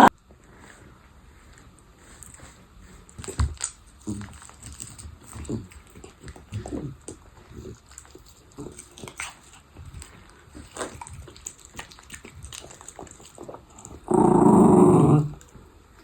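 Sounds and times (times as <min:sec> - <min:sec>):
dog chewing bone: 0:02.0 - 0:16.0
dog growling: 0:12.4 - 0:15.6.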